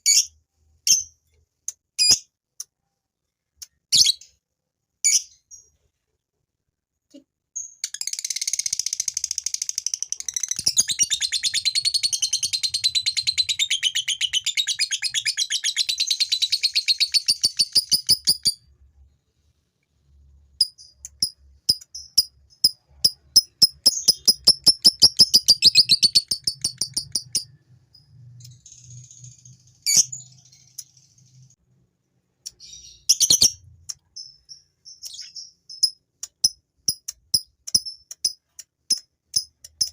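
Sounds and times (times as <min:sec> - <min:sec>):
lovebird chattering trill: 0:08.0 - 0:18.6, 0:20.6 - 0:27.5, 0:32.5 - 0:38.2.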